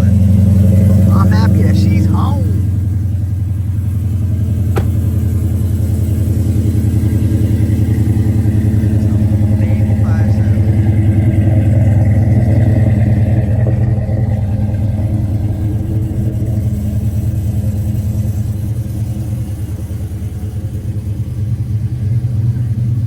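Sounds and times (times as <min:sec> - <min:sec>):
car engine deep rumble: 0:00.0 - 0:23.0.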